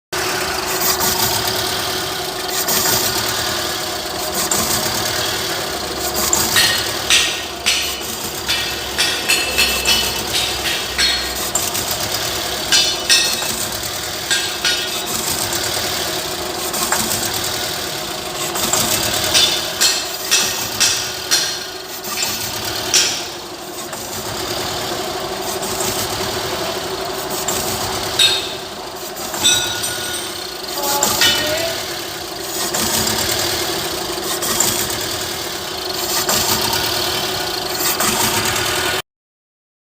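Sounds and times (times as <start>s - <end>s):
car engine idling: 3.2s - 25.4s
sharp clicks and knocks: 6.2s - 16.0s, 18.4s - 24.1s, 27.5s - 31.8s.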